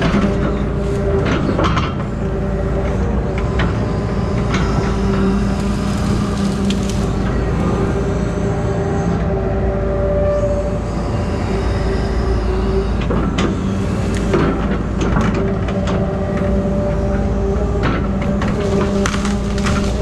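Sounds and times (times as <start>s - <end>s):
crane engine and hydraulics humming: 0.0s - 20.0s
wood cracking and snapping: 5.6s - 7.2s, 18.2s - 20.0s.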